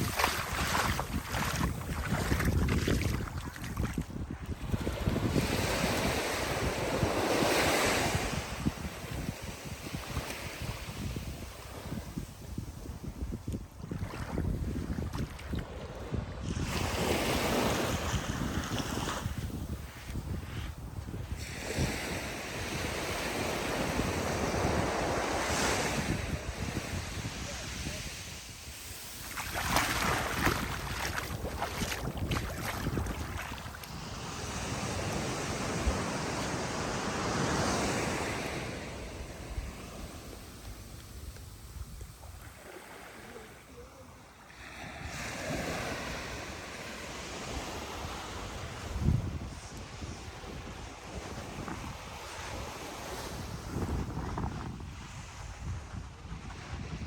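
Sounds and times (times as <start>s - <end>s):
surf breaking on beach: 0.0s - 4.1s, 22.2s - 43.7s
waves breaking on beach: 0.0s - 13.0s, 13.6s - 56.6s
wind buffeting microphone: 0.0s - 42.7s, 47.3s - 57.0s.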